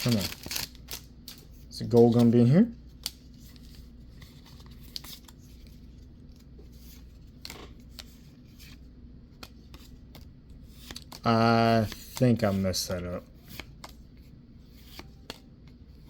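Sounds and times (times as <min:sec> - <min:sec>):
low steady hum: 0:00.0 - 0:16.0
soft rubbing of cards: 0:09.7 - 0:16.0.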